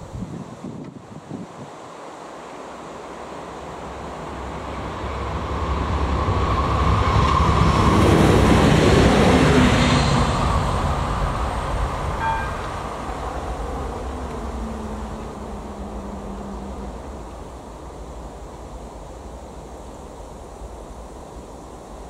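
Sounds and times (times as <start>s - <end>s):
train wheels on rails: 0.8s - 22.0s
diesel train engine: 2.0s - 22.0s
short tone: 12.2s - 12.9s.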